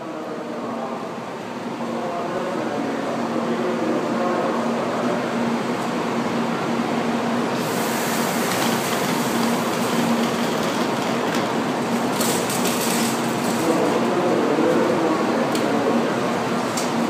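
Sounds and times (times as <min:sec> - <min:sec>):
train hum: 0:00.0 - 0:17.0
rushing hiss: 0:07.6 - 0:09.6.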